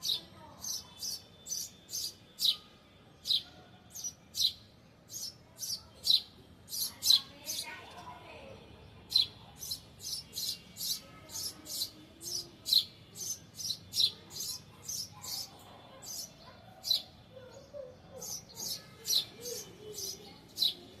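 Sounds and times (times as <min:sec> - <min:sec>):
small bird chirping: 0:00.0 - 0:07.9, 0:09.0 - 0:21.0.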